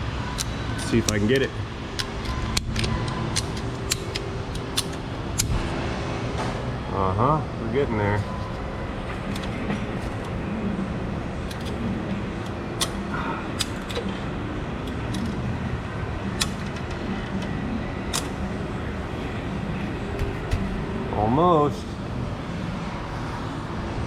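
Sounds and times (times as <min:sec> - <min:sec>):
steady background noise: 0:00.0 - 0:24.0
sharp metallic clicks: 0:00.3 - 0:05.6, 0:16.3 - 0:17.5.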